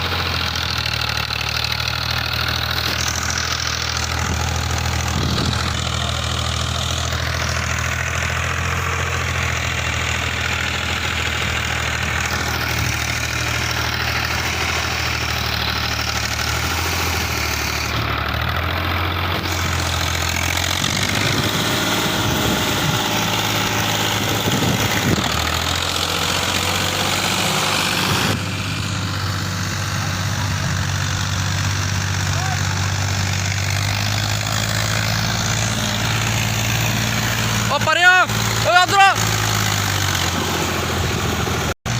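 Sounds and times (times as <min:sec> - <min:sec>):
engine knocks: 0:00.0 - 0:41.9
tractor diesel engine running: 0:00.0 - 0:41.9.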